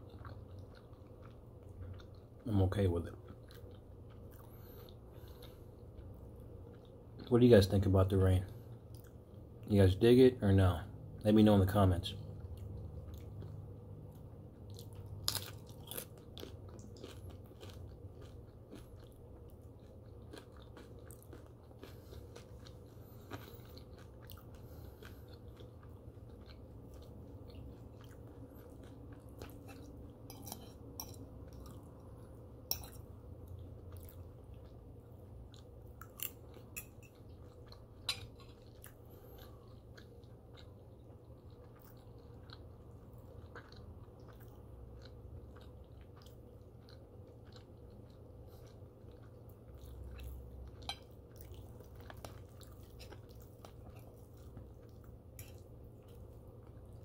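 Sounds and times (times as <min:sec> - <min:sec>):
person chewing food: 0:00.0 - 0:07.3, 0:08.4 - 0:09.7, 0:12.2 - 0:57.0
food crunching: 0:00.0 - 0:10.2, 0:12.0 - 0:57.0.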